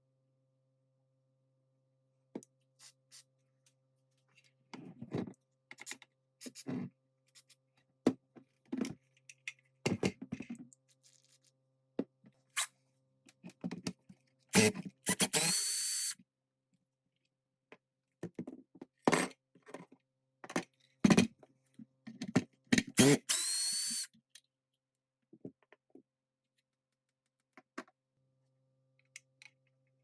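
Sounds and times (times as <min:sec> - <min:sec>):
small power driver whirring: 0:14.6 - 0:16.2, 0:23.0 - 0:24.1.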